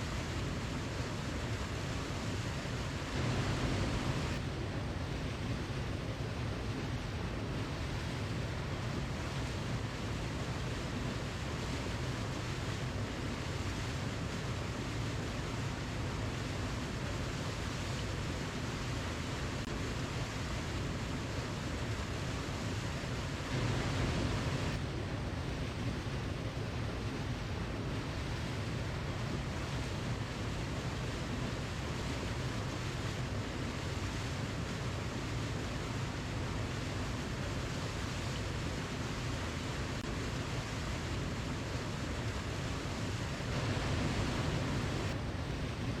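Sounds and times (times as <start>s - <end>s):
waterfall rushing: 39.5s - 45.1s.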